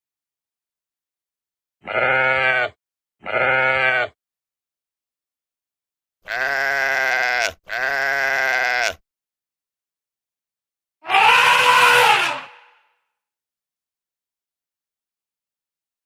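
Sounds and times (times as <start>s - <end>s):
sheep bleating: 1.8s - 4.2s, 6.2s - 9.0s, 11.0s - 12.7s.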